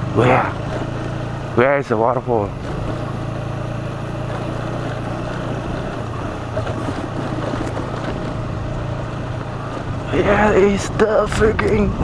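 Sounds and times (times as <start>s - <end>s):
motorcycle engine running: 0.0s - 12.0s
wind rush over microphone: 9.8s - 12.0s.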